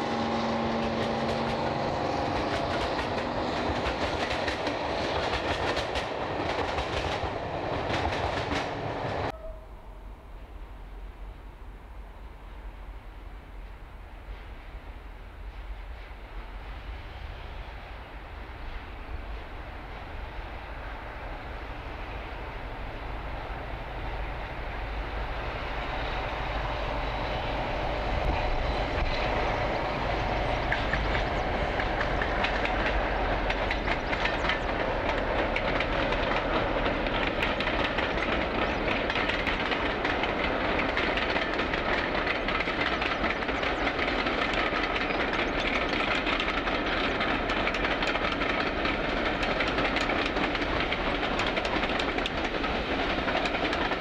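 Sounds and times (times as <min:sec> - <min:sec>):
rumble of train coaches: 0:00.0 - 0:54.0
wheels clicking over rail joints: 0:00.6 - 0:09.4, 0:28.2 - 0:54.0.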